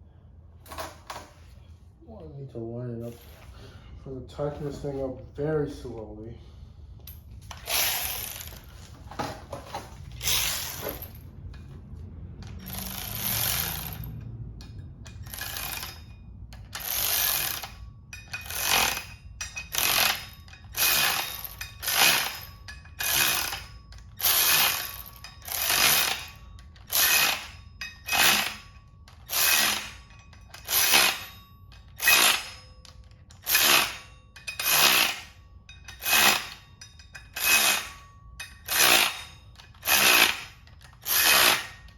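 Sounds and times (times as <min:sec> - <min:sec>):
cordless ratchet bursts: 0:07.5 - 0:08.7, 0:10.2 - 0:11.1, 0:12.4 - 0:14.1, 0:15.1 - 0:36.6, 0:37.2 - 0:38.0, 0:38.6 - 0:41.9.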